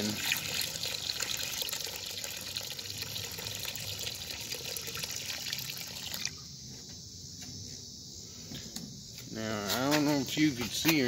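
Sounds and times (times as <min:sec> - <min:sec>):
liquid pouring into water: 0:00.0 - 0:06.4.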